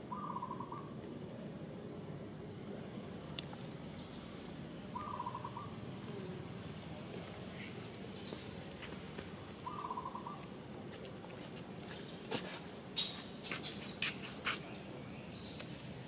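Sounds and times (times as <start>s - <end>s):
trilled bird call: 0.0s - 0.9s, 4.9s - 5.8s, 9.6s - 10.4s.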